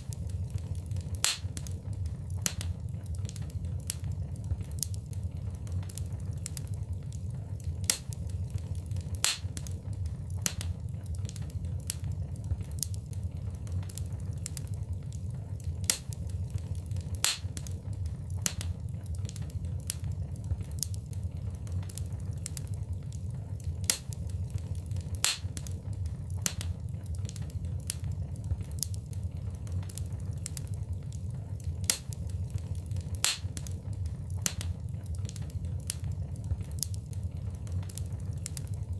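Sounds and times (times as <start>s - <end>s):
fire crackling and popping: 0.0s - 38.9s
fire rumbling: 0.0s - 38.9s.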